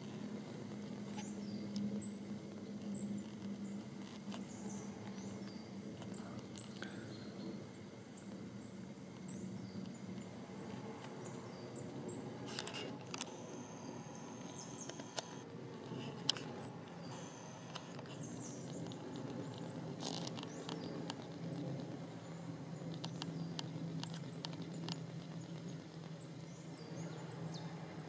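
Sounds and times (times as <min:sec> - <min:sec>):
small birds chirping: 0:00.0 - 0:28.0
sharp clicks: 0:12.4 - 0:21.9.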